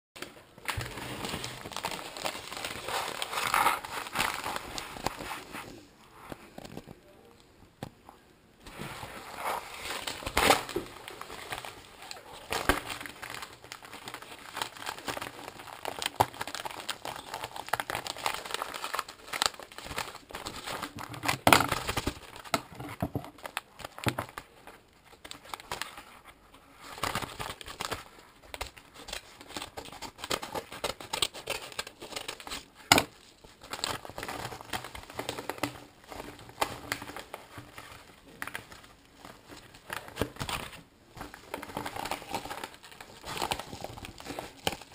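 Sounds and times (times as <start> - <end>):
packaging crinkling and rustling: 0.2 - 7.1, 8.7 - 44.9
packaging tearing: 0.7 - 5.3, 9.6 - 22.6.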